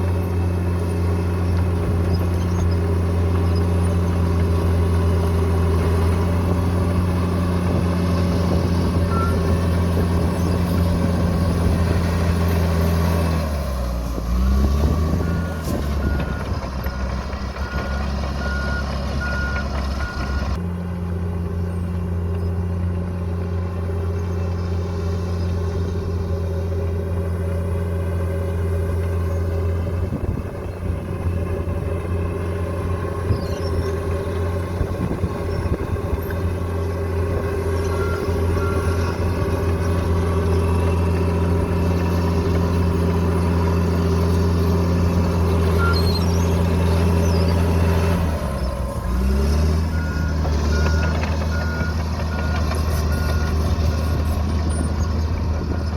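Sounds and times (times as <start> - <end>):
bulldozer diesel engine: 0.0 - 55.9
reversing alarm beeping: 15.1 - 20.6, 49.8 - 54.9.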